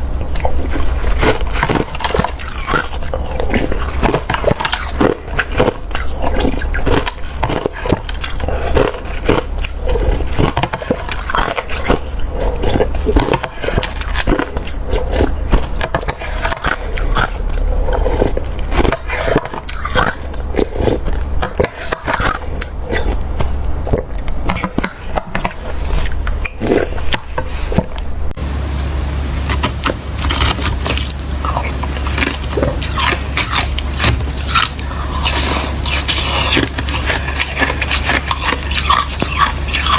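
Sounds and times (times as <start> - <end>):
chewing slushy ice: 0.0 - 28.3, 29.5 - 39.9.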